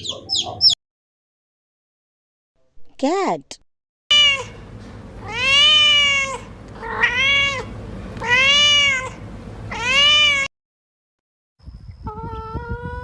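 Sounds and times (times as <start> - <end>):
cat meowing: 4.1 - 4.6, 5.3 - 10.5.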